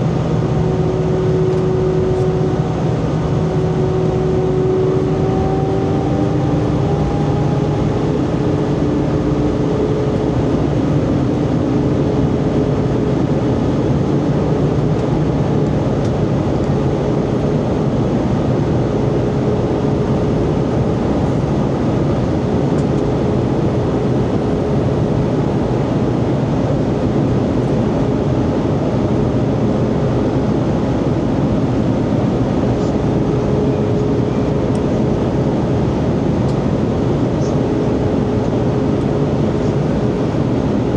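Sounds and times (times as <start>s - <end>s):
faint steady hums: 0.0s - 15.1s, 32.0s - 40.9s
airflow rushing in aircraft cabin: 0.0s - 40.9s
jet engine drone: 0.0s - 40.9s.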